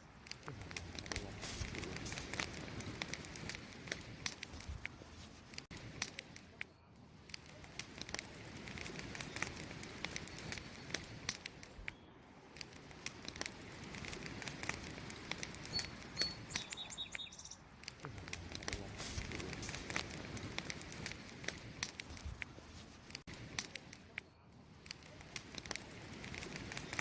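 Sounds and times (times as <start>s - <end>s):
campfire crackling: 0.0s - 27.0s
faint high chirps: 15.6s - 17.7s.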